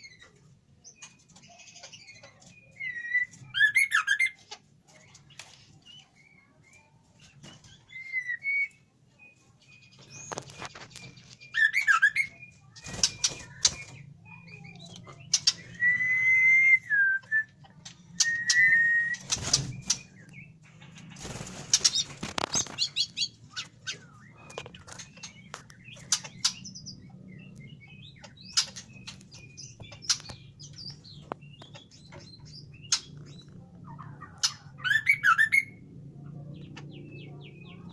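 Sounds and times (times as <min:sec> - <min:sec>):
bird whistled calls and chirps: 0:00.0 - 0:04.4, 0:07.6 - 0:20.6, 0:21.9 - 0:35.8
faint low hum: 0:12.2 - 0:37.9
bird wing flaps: 0:19.1 - 0:20.0, 0:21.2 - 0:23.0.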